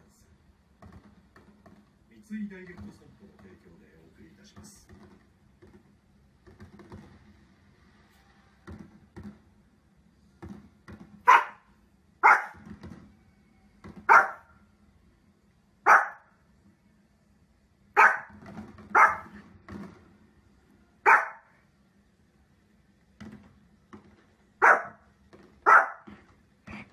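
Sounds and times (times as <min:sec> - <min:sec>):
dog barking: 0:11.2 - 0:12.6, 0:14.0 - 0:14.5, 0:15.8 - 0:16.3, 0:18.0 - 0:19.4, 0:21.0 - 0:21.6, 0:24.6 - 0:25.0, 0:25.6 - 0:26.1.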